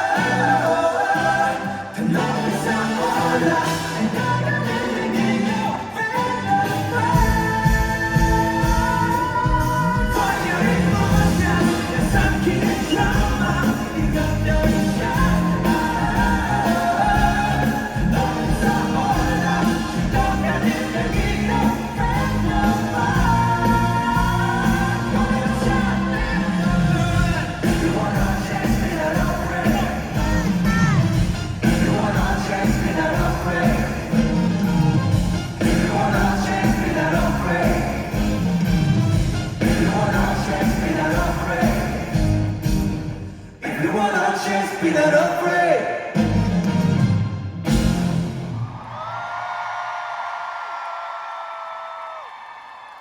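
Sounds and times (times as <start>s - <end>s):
person singing: 0.0s - 38.6s
drums and bass: 0.0s - 43.3s, 46.2s - 49.1s
pop-rock band playing: 0.0s - 43.5s, 46.2s - 48.8s.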